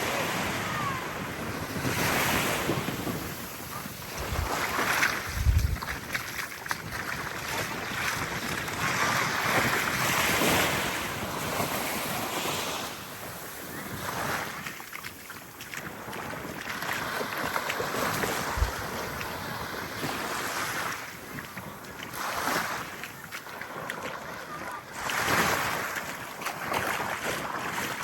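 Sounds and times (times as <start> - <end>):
wind gusting on microphone: 0.0 - 14.7, 15.4 - 23.3
small waves lapping on beach: 0.0 - 28.0.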